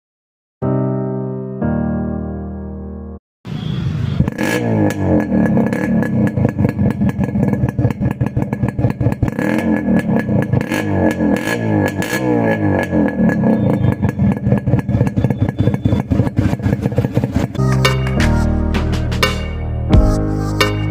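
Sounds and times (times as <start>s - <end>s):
two-stroke engine revving: 4.0s - 17.6s.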